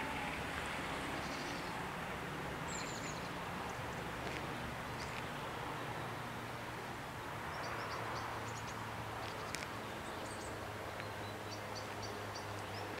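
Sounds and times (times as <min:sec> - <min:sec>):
small birds chirping: 0:01.2 - 0:01.8, 0:02.7 - 0:05.3, 0:07.5 - 0:13.0.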